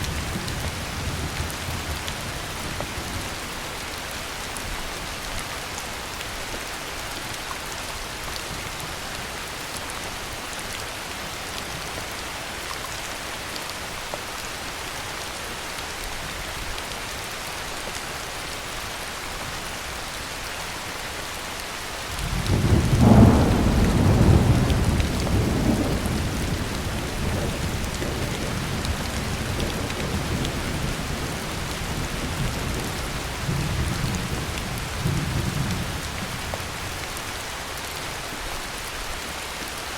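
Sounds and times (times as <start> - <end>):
heavy rainfall: 0.0 - 39.9
thunder rumbling: 22.2 - 36.6.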